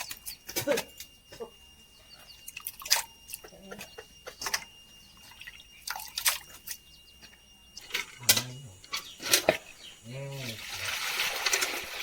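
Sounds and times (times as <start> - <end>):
water splashing and dripping: 2.5 - 3.4, 5.2 - 6.8, 10.3 - 12.0.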